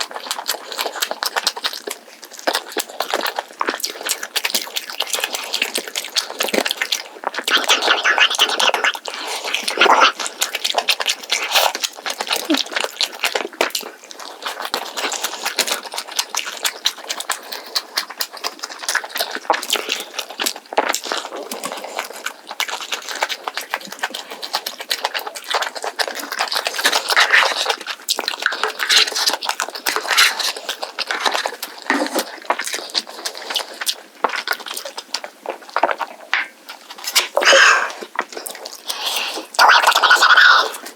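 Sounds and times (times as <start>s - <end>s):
wet chewing and crunching: 0.0s - 40.9s.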